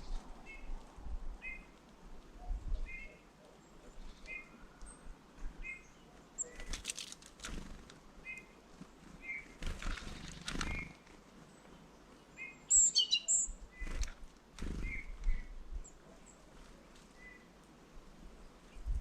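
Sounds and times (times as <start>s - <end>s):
songbirds chirping: 0.0s - 19.0s
wing flutters: 6.4s - 8.0s, 8.8s - 11.2s, 13.8s - 15.5s.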